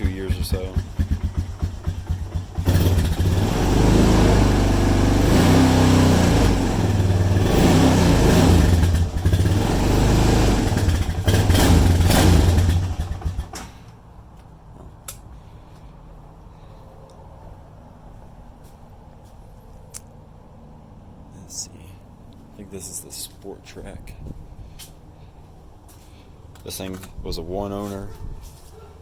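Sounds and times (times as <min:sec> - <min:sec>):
atv engine revving: 0:00.0 - 0:13.8.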